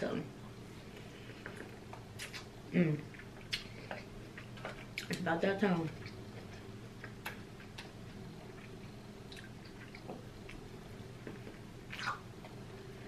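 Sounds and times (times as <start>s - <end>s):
chewing corn on the cob: 5.9s - 10.6s.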